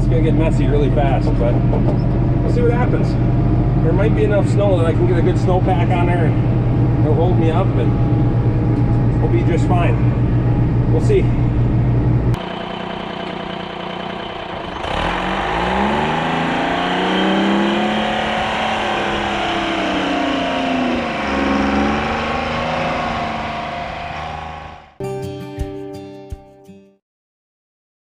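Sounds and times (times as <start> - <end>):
tractor engine running: 0.0 - 25.0
plucked acoustic guitar music: 25.0 - 26.9.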